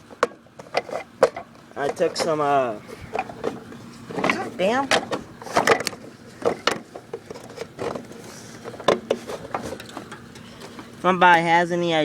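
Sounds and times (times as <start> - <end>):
metal parts and tools knocking: 3.1 - 10.8.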